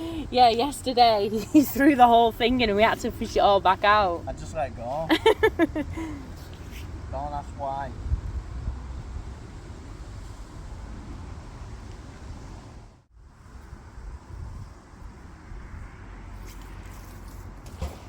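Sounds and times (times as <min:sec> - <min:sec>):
wind buffeting microphone: 0:06.8 - 0:11.8, 0:13.3 - 0:16.3.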